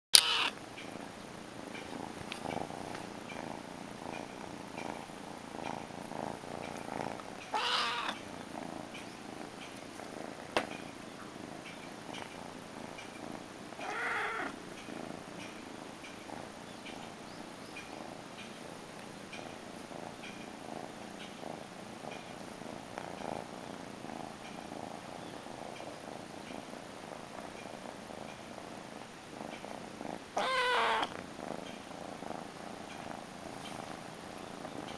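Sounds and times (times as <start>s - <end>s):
kitten meowing: 0.2s - 0.5s, 7.5s - 8.2s, 13.8s - 14.5s, 30.4s - 31.1s
kitten purring: 0.2s - 34.9s.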